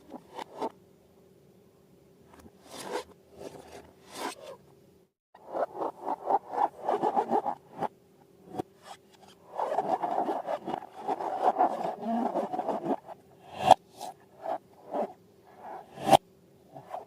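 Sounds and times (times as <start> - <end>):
rubbing and scraping strokes: 0.0 - 0.7, 2.3 - 4.6, 5.4 - 7.9, 8.5 - 16.2
sharp scrape: 2.6 - 4.6, 5.4 - 7.9, 8.5 - 16.2.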